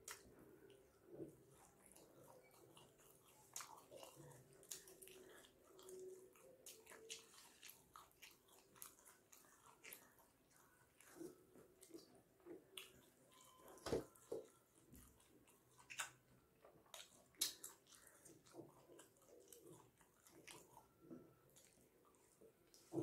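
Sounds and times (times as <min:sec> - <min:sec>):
wet chewing: 0:00.0 - 0:23.0.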